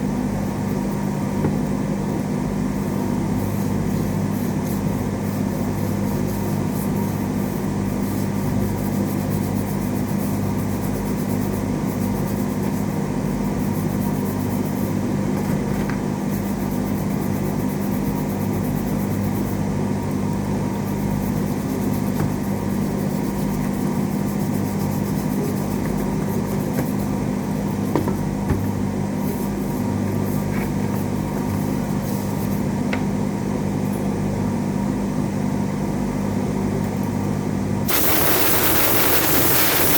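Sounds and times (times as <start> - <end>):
electrical hum: 19.5 - 39.9.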